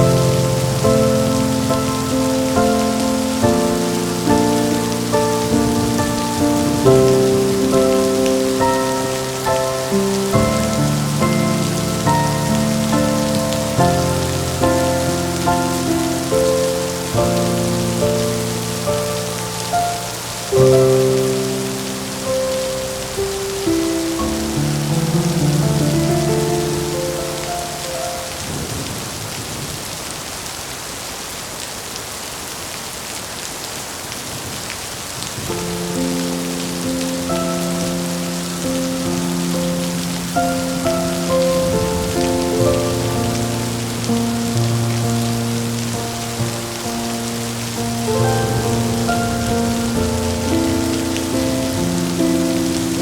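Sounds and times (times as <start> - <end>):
slow gentle melodic music: 0.0 - 28.7, 35.5 - 53.0
steady rain hiss: 0.0 - 53.0
low thunder rumble: 47.8 - 53.0.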